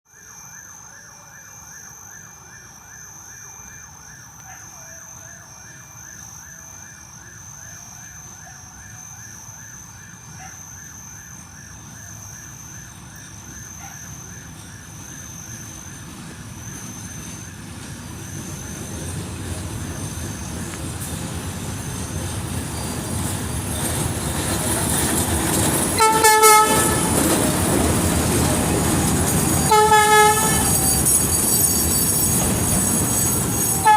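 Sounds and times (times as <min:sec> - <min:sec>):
diesel locomotive rumble: 0:13.0 - 0:33.9
train horn blast: 0:26.0 - 0:27.2, 0:29.6 - 0:31.2, 0:33.6 - 0:33.9.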